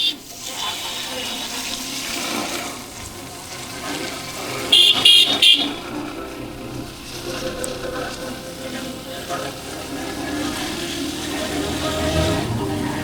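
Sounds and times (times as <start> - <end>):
vehicle horn honks: 0.0 - 0.3, 4.5 - 6.2
motorcycle riding: 0.0 - 13.0.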